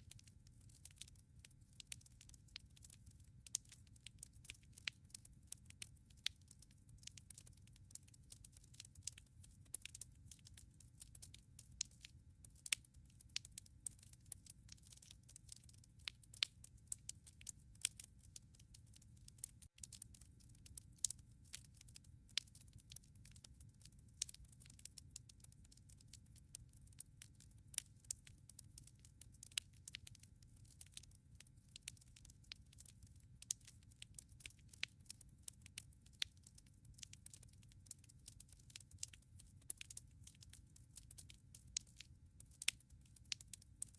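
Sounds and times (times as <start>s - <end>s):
burning logs popping and snapping: 1.9s - 18.7s, 19.4s - 24.8s, 29.4s - 30.9s, 31.9s - 36.2s, 36.9s - 40.5s.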